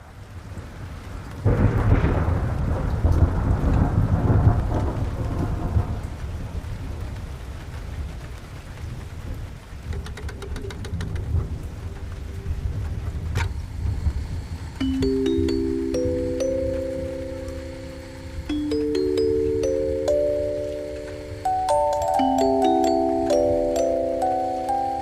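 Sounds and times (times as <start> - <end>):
steady rain: 0.0 - 25.0
thunder rumbling: 1.1 - 7.4.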